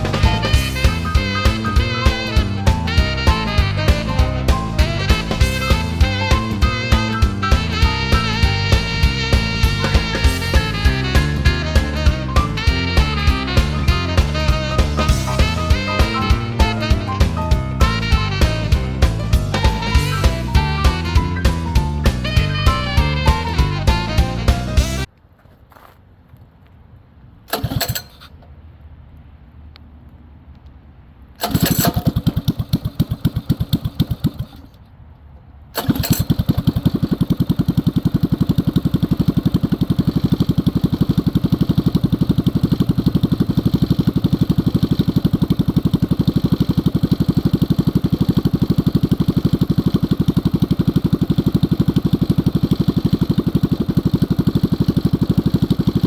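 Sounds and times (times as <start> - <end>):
minibike engine starting and running: 0.0 - 25.1, 27.5 - 28.5, 31.4 - 34.9, 35.7 - 56.0.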